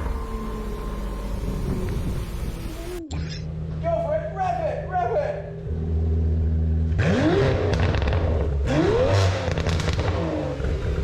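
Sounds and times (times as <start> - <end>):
sports car engine revving: 5.4 - 11.0
exhaust pops and crackles: 7.0 - 11.0.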